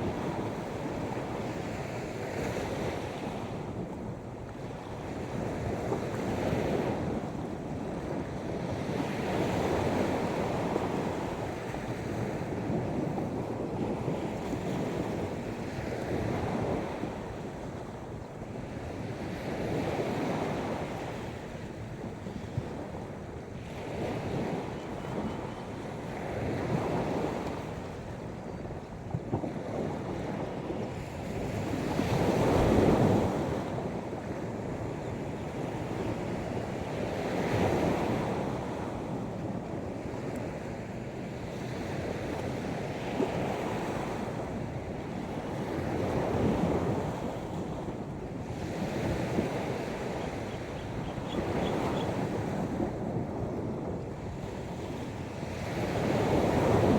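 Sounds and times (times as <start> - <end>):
wind buffeting microphone: 0.0 - 56.9
sea waves breaking: 54.2 - 56.9.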